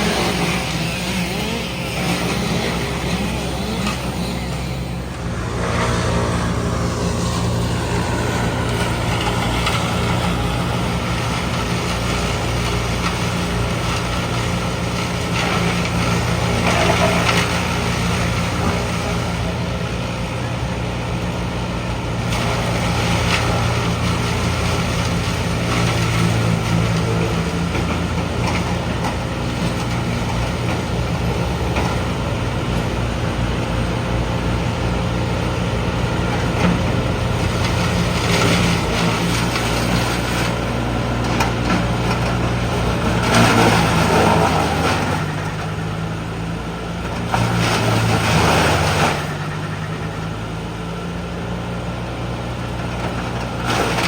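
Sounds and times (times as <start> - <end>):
loud rushing surges of noise: 0.0 - 13.8
diesel machinery engine running: 0.0 - 54.0.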